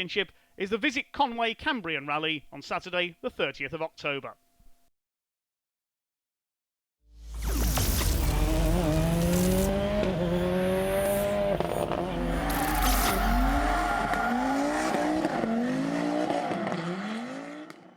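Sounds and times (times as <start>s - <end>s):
rally car engine revving: 7.7s - 17.9s.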